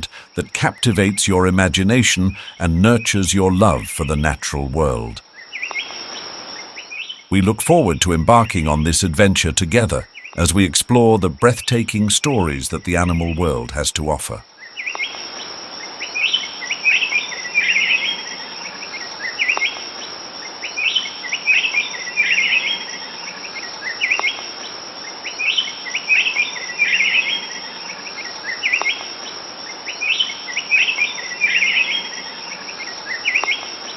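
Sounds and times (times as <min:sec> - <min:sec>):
insects hissing: 0:00.0 - 0:00.4, 0:05.2 - 0:07.1
birds chirping: 0:07.3 - 0:14.4.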